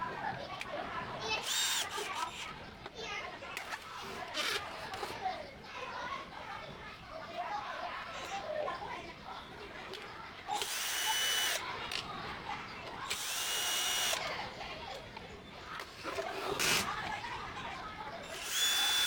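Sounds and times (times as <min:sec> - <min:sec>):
electric screwdriver whining: 0:01.4 - 0:02.5, 0:04.3 - 0:05.1, 0:10.6 - 0:11.6, 0:13.1 - 0:14.3, 0:16.2 - 0:17.0, 0:18.2 - 0:19.0.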